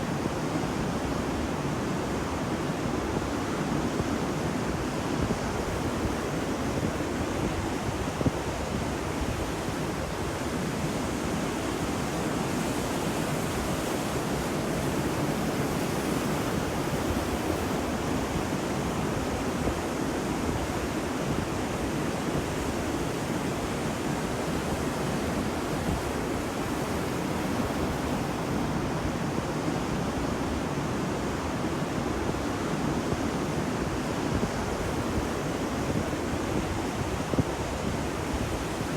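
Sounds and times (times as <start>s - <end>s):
ocean surf washing onto beach: 0.0s - 38.9s.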